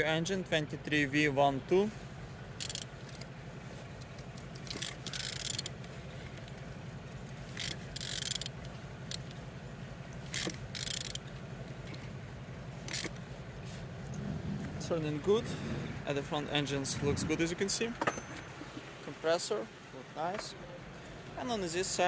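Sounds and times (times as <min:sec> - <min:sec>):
engine churning turned by hand: 0:00.0 - 0:17.5
ratchet clicking and scraping: 0:02.6 - 0:03.3, 0:04.0 - 0:06.6, 0:07.3 - 0:09.4, 0:10.2 - 0:12.2, 0:12.8 - 0:13.2.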